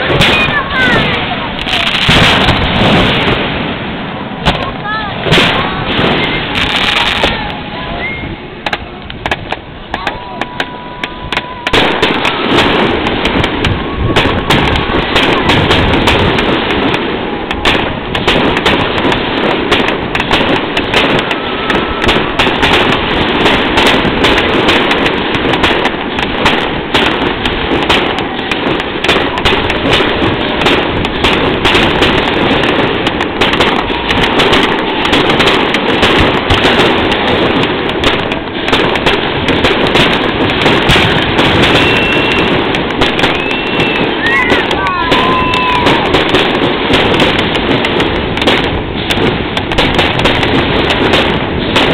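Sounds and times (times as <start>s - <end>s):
fireworks bangs and crackles: 0.0s - 51.9s.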